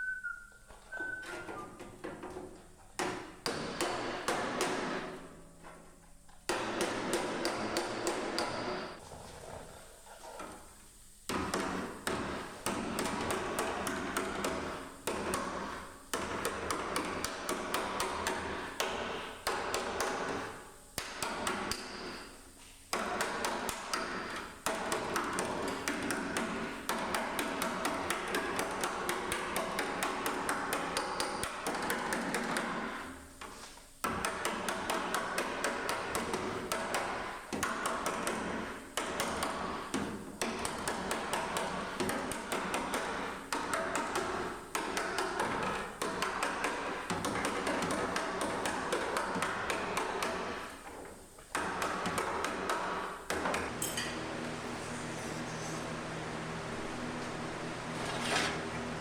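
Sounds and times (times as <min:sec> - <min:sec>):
hammering on sheet metal: 0:03.0 - 0:05.2, 0:06.5 - 0:09.0, 0:11.3 - 0:33.2, 0:34.0 - 0:54.1.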